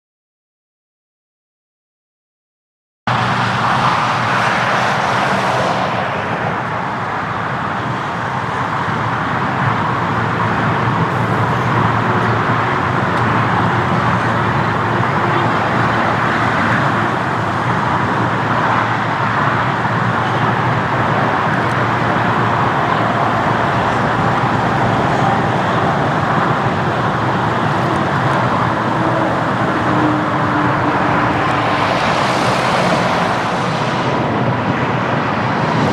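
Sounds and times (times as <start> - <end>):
distant jet engines roaring: 3.1 - 35.9.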